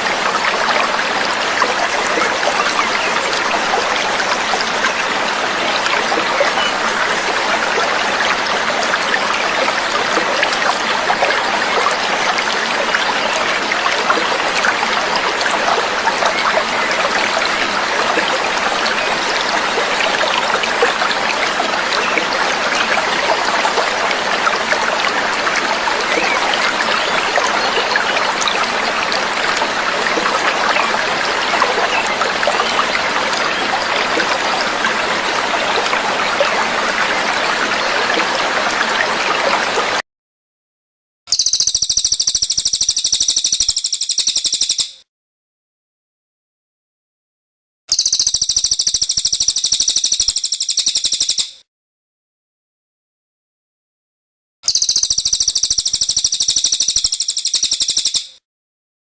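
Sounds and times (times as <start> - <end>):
stream water trickling: 0.0 - 40.0.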